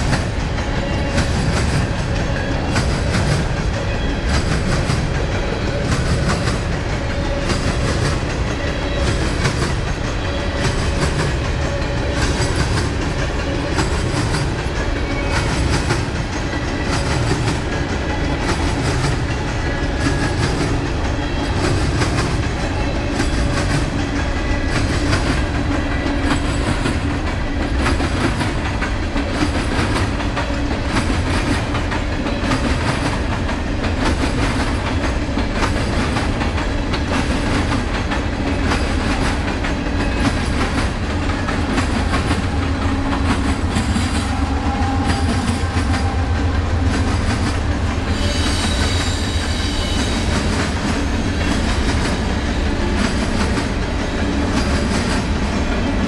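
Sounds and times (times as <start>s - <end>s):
train wheels clicking over rails: 0.0s - 56.0s
high wheel squeal: 48.0s - 52.8s.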